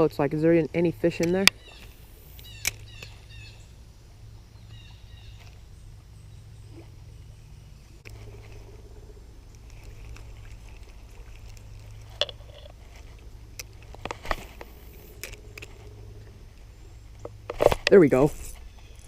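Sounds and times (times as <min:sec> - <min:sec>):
low steady hum: 0:00.0 - 0:19.0
sharp clicks and knocks: 0:09.6 - 0:15.8.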